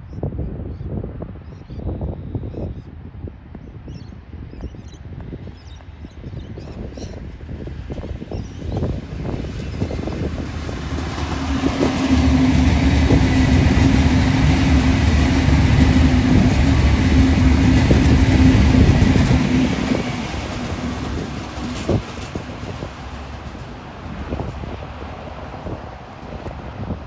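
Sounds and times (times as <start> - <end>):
train passing at speed: 6.9 - 27.0.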